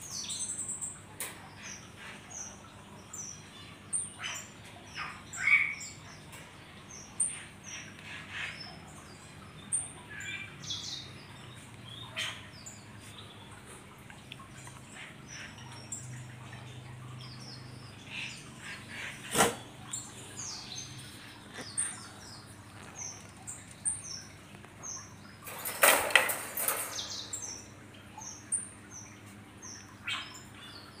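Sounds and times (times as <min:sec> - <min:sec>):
small birds chirping: 0:00.0 - 0:31.0
rattling: 0:25.4 - 0:27.4.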